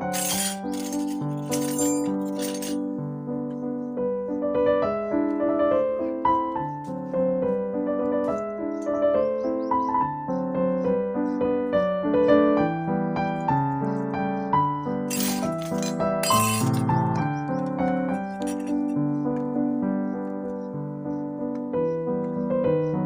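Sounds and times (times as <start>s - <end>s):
small hard objects clinking: 0.0s - 2.8s, 15.1s - 17.0s, 18.3s - 18.9s
piano music: 0.0s - 23.0s.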